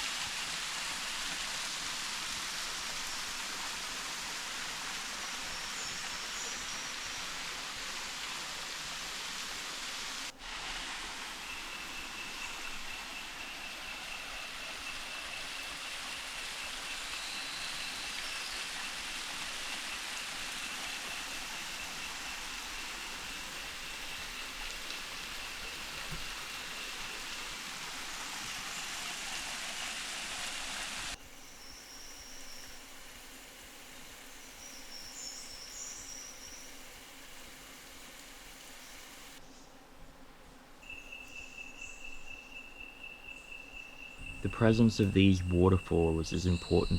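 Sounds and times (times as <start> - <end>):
flowing water rushing: 0.0 - 31.2
insects calling: 0.0 - 39.8, 40.8 - 46.9.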